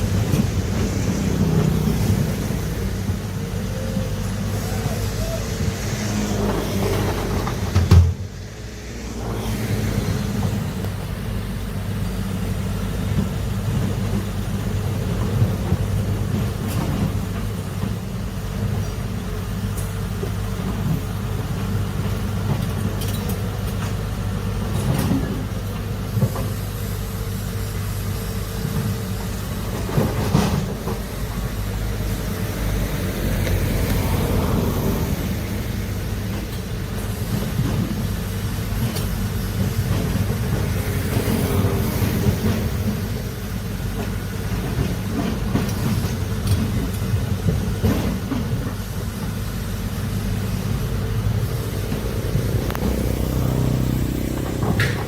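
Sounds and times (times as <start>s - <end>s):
diesel excavator engine running: 0.0s - 55.0s.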